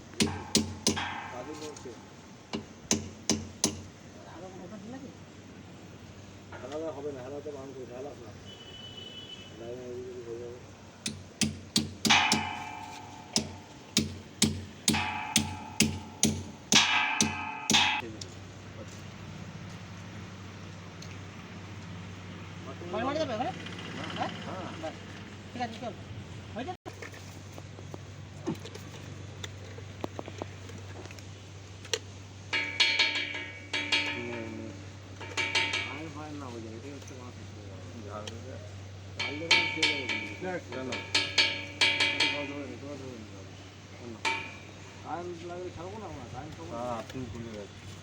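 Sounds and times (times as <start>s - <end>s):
hammer blows on iron: 0.0s - 3.9s, 11.1s - 18.1s, 32.5s - 36.2s, 39.2s - 42.8s, 44.2s - 45.0s.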